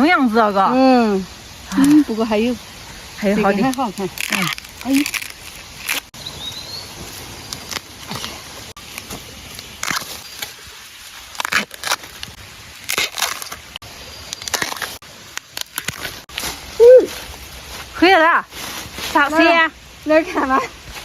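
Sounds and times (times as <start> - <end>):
dry stalks crackling and snapping: 3.4 - 17.9.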